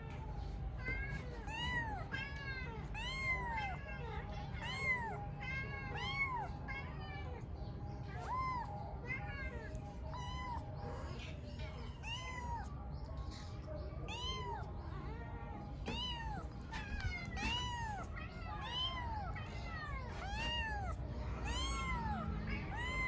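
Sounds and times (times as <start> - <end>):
kitten meowing: 1.4 - 2.3, 3.0 - 3.8, 4.6 - 5.2, 5.9 - 6.5, 8.2 - 8.8, 10.1 - 10.6, 11.9 - 12.7, 14.1 - 14.7, 15.8 - 19.4, 20.1 - 23.0.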